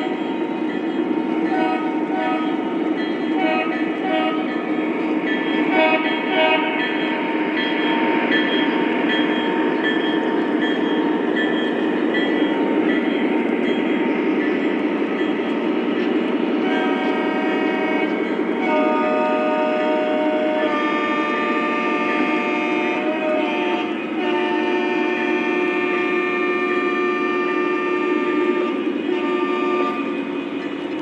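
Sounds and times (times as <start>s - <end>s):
model train rolling on track: 0.0s - 31.0s
model train horn: 1.4s - 4.7s, 5.6s - 7.3s, 16.6s - 30.6s.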